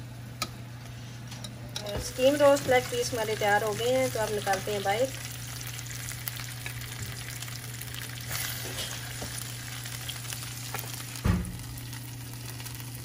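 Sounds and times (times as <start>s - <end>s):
steady low hum: 0.0s - 13.0s
chicken sizzling in hot oil: 1.8s - 13.0s
dull thump: 11.2s - 11.6s.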